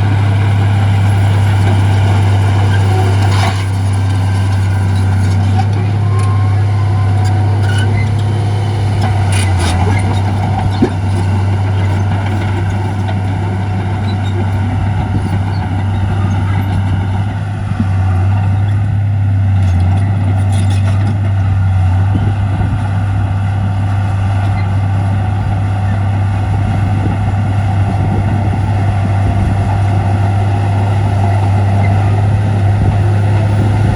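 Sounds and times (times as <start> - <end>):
diesel machinery engine drone: 0.0 - 33.9.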